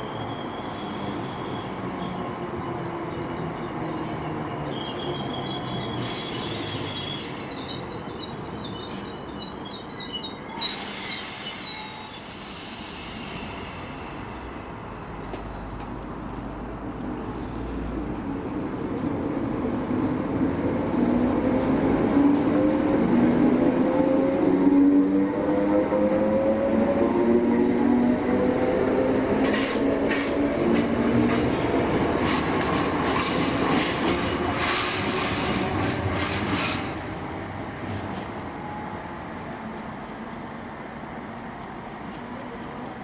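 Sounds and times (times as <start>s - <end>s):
train rumble: 0.0s - 43.0s
wheel squeal: 4.7s - 12.3s.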